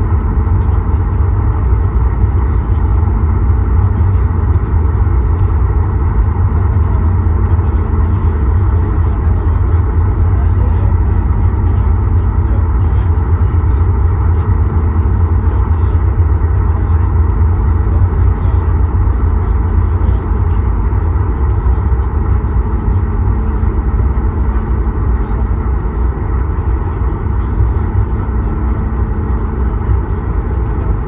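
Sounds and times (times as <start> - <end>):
airliner cabin rumble: 0.0 - 31.0
faint hum: 0.0 - 31.0.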